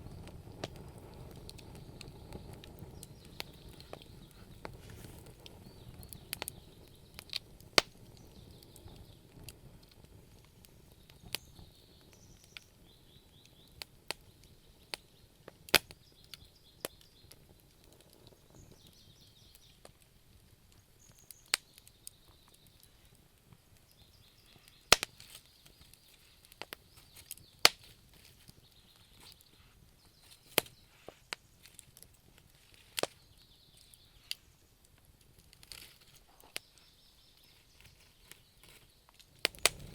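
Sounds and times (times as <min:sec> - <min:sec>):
faint steady hiss: 0:00.0 - 0:39.9
wood fire crackling: 0:00.0 - 0:39.9.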